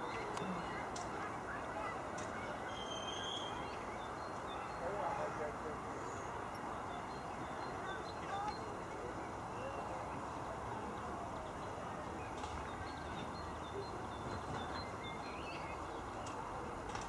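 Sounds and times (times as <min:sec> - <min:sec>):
faint bird chirps: 0:02.5 - 0:05.2.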